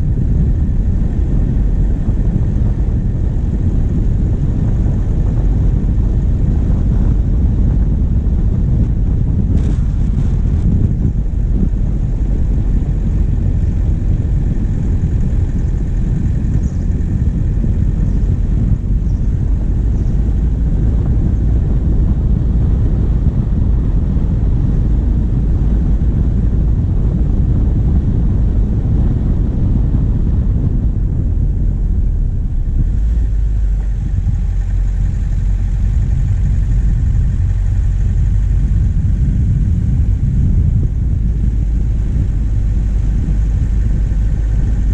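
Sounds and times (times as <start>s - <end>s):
diesel engine rumble: 0.0s - 44.9s
road noise: 0.0s - 44.9s.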